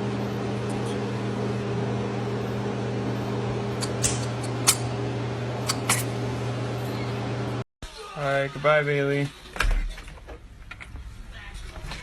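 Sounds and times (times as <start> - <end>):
low mechanical hum: 0.0 - 7.6.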